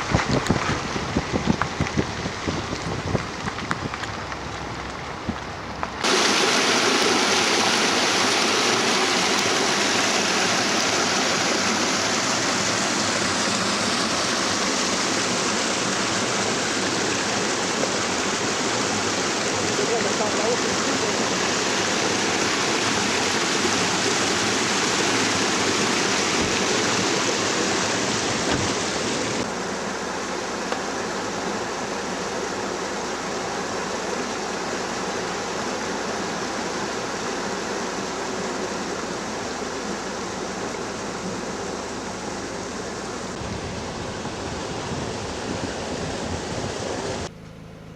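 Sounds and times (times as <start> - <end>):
stream water rushing: 4.1 - 47.3.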